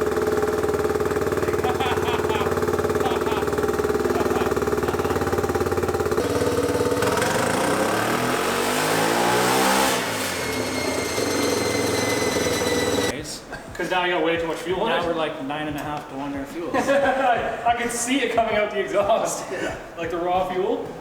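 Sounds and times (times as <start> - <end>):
single-cylinder engine revving: 0.0 - 13.1.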